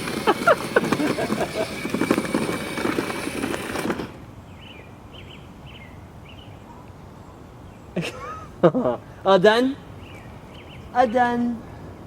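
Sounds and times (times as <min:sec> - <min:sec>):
bird chirping: 0:04.4 - 0:08.0, 0:09.9 - 0:11.4.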